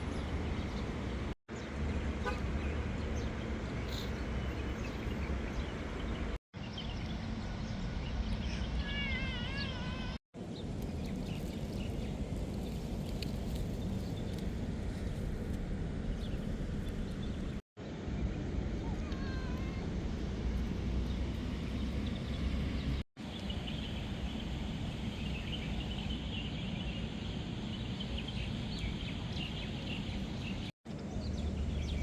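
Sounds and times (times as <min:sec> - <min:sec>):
low traffic rumble: 0:00.0 - 0:32.0.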